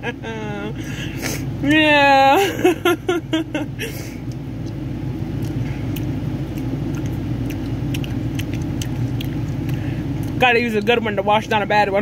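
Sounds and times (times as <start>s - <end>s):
steady low rumble: 0.0s - 12.0s
candy being chewed: 4.2s - 10.4s.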